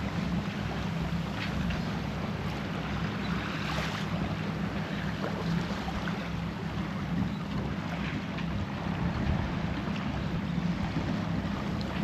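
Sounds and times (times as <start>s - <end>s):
water rushing along hull: 0.0s - 12.0s
wind buffeting microphone: 6.4s - 12.0s.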